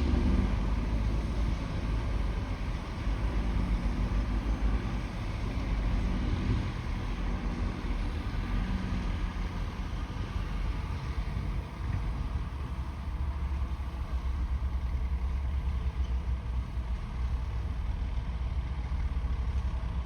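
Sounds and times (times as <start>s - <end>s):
bulldozer diesel engine under load: 0.0s - 20.0s.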